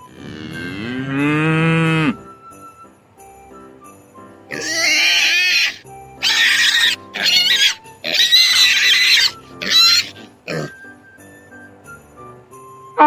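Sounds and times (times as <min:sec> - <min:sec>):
quiet background music: 0:00.0 - 0:13.0
animal high-pitched calls: 0:04.5 - 0:10.8.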